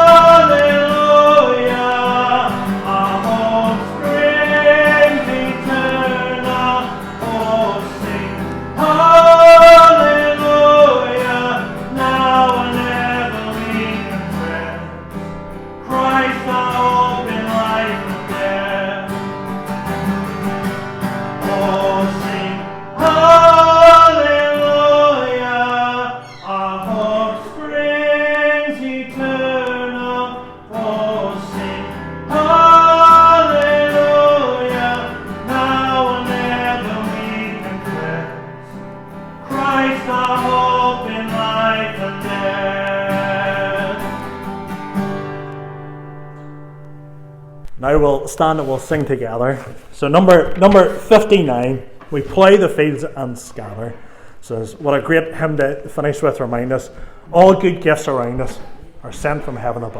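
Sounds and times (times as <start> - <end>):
person singing: 0.0 - 15.1, 15.8 - 19.6, 21.1 - 44.4
acoustic guitar: 0.0 - 59.9.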